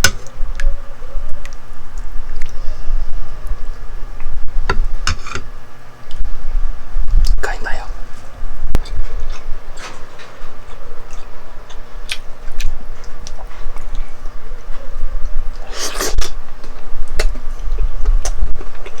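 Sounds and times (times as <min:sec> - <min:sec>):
person chewing food: 0:08.8 - 0:19.0.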